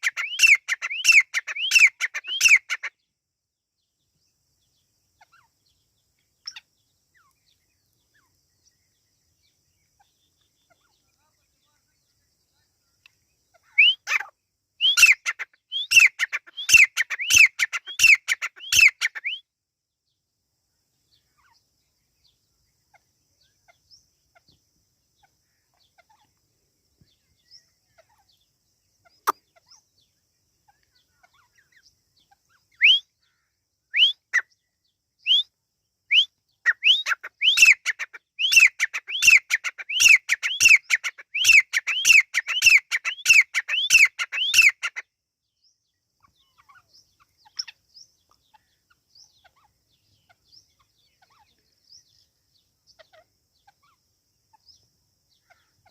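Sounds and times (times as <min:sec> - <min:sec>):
francolin whistled calls: 0:00.0 - 0:03.0, 0:13.5 - 0:19.5, 0:28.9 - 0:55.9.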